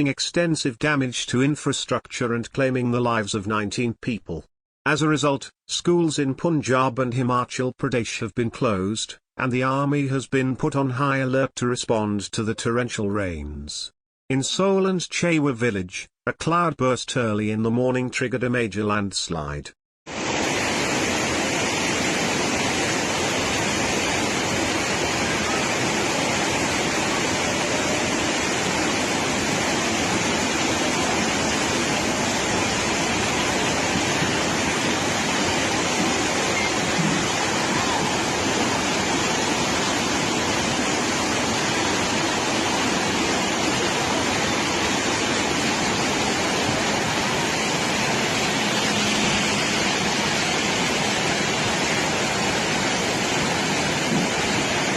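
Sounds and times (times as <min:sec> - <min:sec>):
floodwater rushing: 0:20.1 - 0:54.9.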